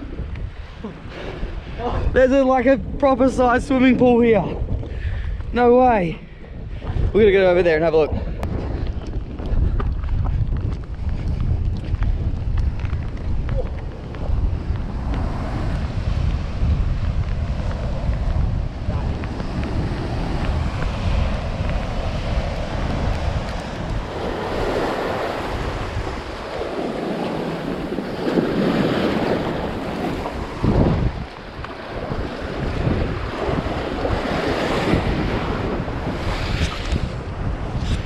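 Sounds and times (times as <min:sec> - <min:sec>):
wind buffeting microphone: 0:00.0 - 0:38.0
surf breaking on rocky shore: 0:13.4 - 0:38.0.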